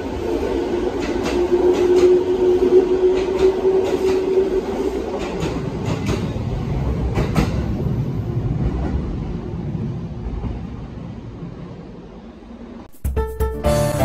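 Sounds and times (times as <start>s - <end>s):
train running noise: 0.0s - 12.9s
train wheels click-clacking: 0.8s - 7.9s.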